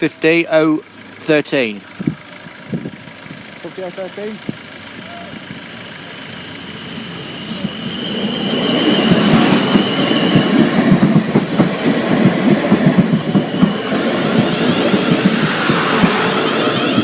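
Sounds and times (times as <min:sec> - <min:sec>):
train wheels clattering over joints: 0:00.3 - 0:17.0.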